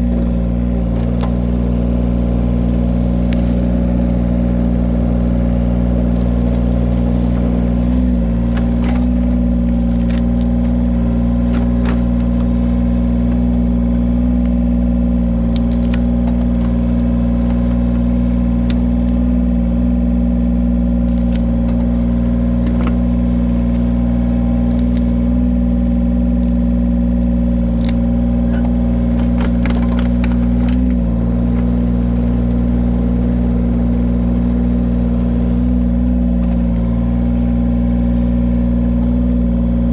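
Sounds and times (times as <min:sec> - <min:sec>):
wood splitter engine running: 0:00.0 - 0:39.9
sharp clicks and cracks: 0:08.4 - 0:12.7, 0:15.4 - 0:19.2, 0:21.0 - 0:23.9, 0:24.5 - 0:32.6.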